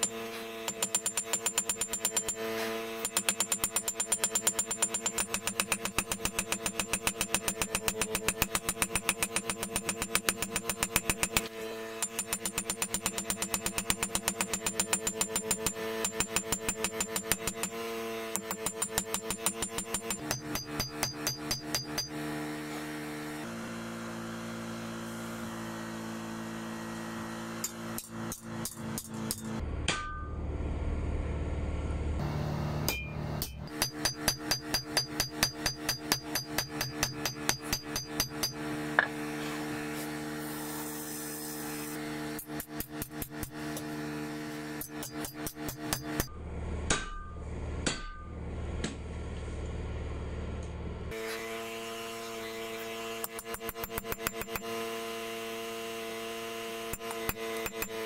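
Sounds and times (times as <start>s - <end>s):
hammer striking blade on anvil: 0.0s - 22.3s, 27.6s - 30.5s, 32.8s - 39.2s, 44.8s - 49.0s, 56.9s - 58.0s
low steady rumble: 29.5s - 33.7s, 46.3s - 51.1s.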